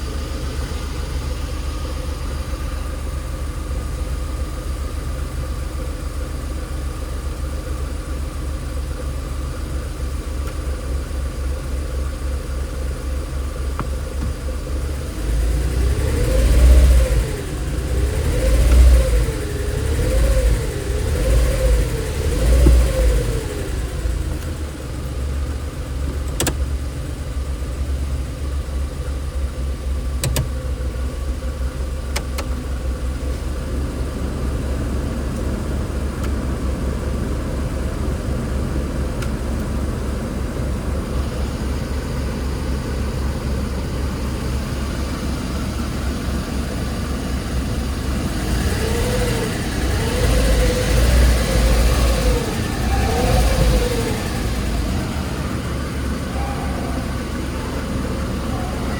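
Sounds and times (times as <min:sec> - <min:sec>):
car engine idling and revving: 0:00.0 - 0:58.9
sharp clicks: 0:30.2 - 0:30.7.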